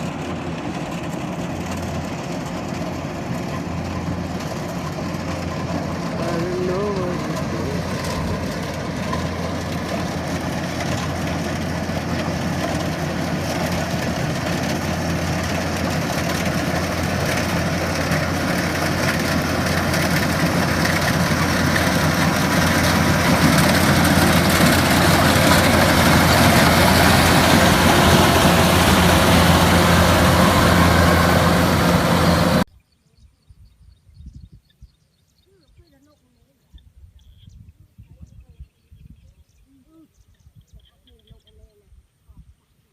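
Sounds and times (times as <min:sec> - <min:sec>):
harvesting machine engine running: 0:00.0 - 0:32.7.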